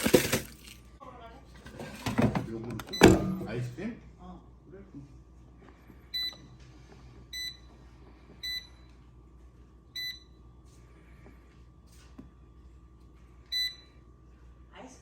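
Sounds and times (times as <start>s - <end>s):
air fryer electronic beeps: 2.9s - 3.4s, 6.1s - 6.6s, 7.3s - 7.7s, 8.4s - 8.9s, 9.9s - 10.4s, 13.5s - 13.9s.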